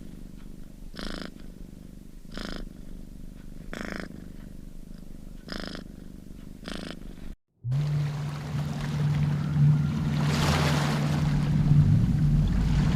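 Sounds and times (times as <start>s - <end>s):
cat purring: 0.0s - 7.4s.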